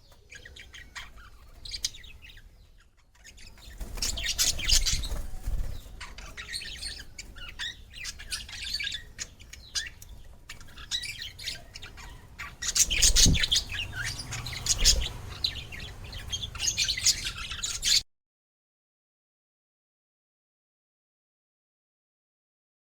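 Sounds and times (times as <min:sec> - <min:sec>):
small birds chirping and squawking: 0:00.0 - 0:18.1.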